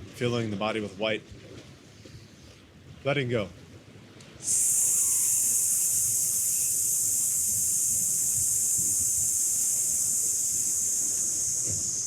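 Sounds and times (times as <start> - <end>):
person exhaling a hiss through teeth: 4.4 - 12.0.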